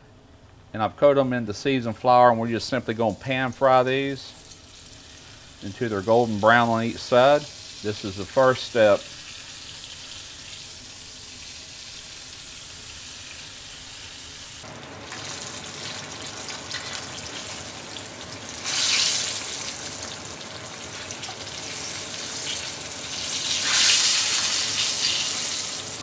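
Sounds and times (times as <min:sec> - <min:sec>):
fish fillets sizzling in oil: 0:04.4 - 0:05.6, 0:07.4 - 0:26.0.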